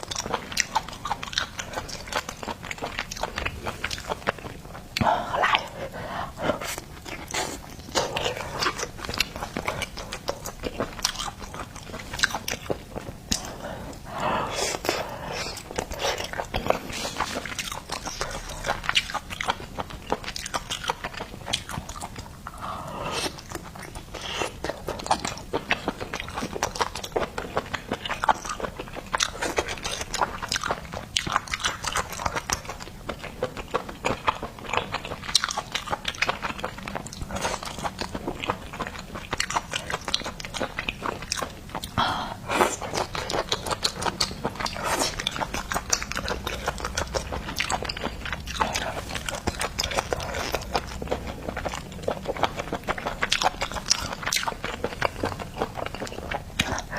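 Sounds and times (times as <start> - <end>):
person chewing seafood: 0.0 - 56.9.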